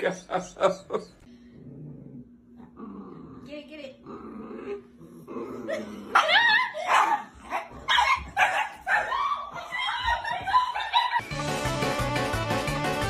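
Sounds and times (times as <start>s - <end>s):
dog barking and yipping: 6.2s - 10.0s
music: 11.2s - 13.0s.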